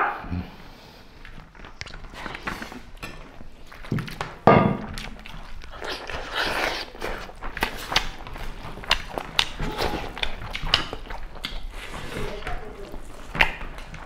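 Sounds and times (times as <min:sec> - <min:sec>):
people chewing food: 0:00.0 - 0:14.0
wet mouth clicks and lip smacks: 0:01.2 - 0:03.0, 0:03.7 - 0:11.8.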